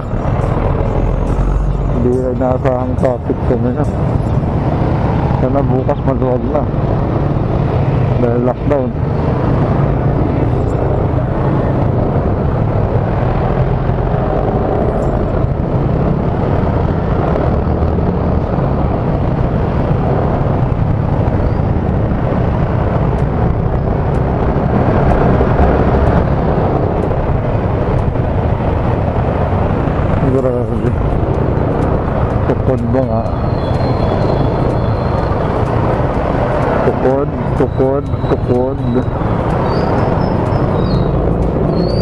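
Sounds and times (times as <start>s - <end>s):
traffic: 0.0s - 42.0s
wind buffeting microphone: 0.0s - 42.0s
motorcycle engine: 8.9s - 42.0s.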